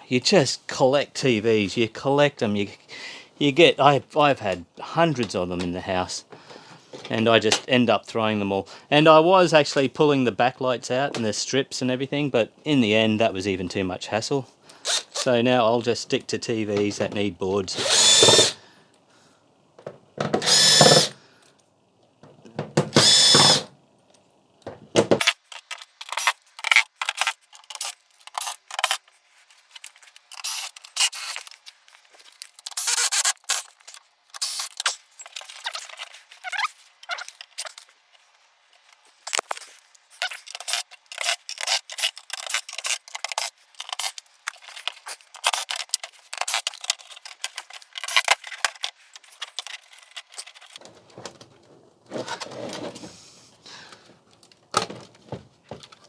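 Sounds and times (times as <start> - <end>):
cordless drill whining: 14.9 - 15.3, 17.7 - 18.6, 20.4 - 21.2, 22.9 - 23.7.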